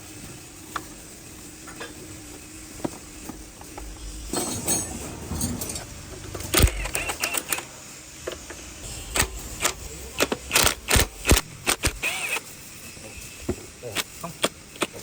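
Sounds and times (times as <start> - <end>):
metal tools clicking and clattering: 4.3 - 7.6.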